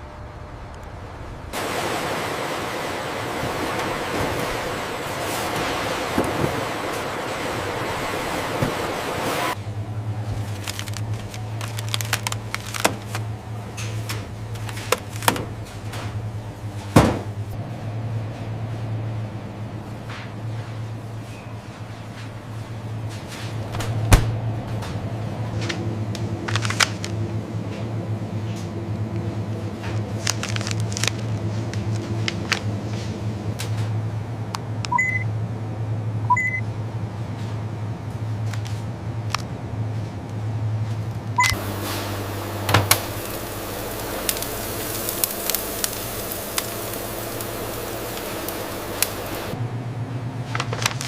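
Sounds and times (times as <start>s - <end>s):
low machinery hum: 0.0s - 51.0s
loud hiss: 1.6s - 9.6s, 41.6s - 49.6s.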